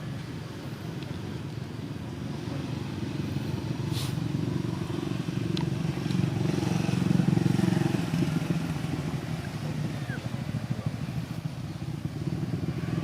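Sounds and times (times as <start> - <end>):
short hiss: 3.9 - 4.3.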